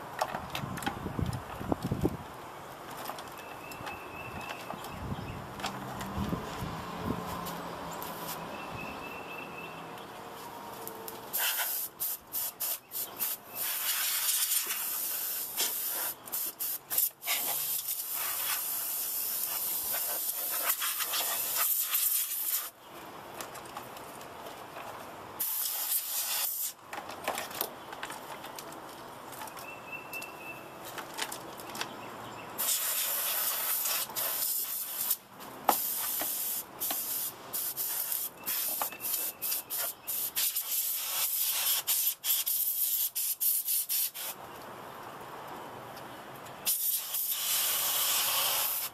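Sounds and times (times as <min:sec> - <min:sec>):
compressed air spraying: 0:11.3 - 0:22.7, 0:25.4 - 0:26.8, 0:32.6 - 0:44.4, 0:46.7 - 0:48.9.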